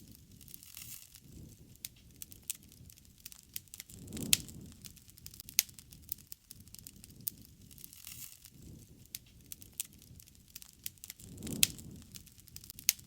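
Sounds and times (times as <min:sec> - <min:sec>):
wood fire crackling and popping: 0:00.0 - 0:13.0
low uneven rushing: 0:03.8 - 0:05.4, 0:11.1 - 0:12.7.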